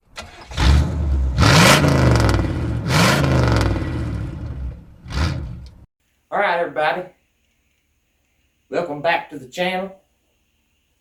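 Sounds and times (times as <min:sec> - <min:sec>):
vehicle engine revving: 0:00.3 - 0:05.9.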